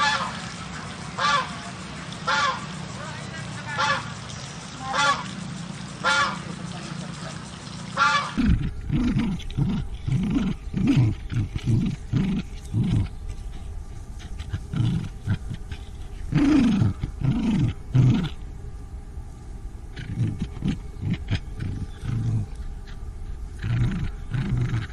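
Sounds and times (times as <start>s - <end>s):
goose honks: 0.0s - 0.4s, 1.2s - 1.6s, 2.2s - 2.7s, 3.7s - 4.1s, 4.9s - 5.3s, 6.0s - 6.4s, 8.0s - 8.4s
lion roaring grunts: 8.4s - 13.2s, 14.2s - 18.4s, 19.9s - 22.7s, 23.5s - 24.9s.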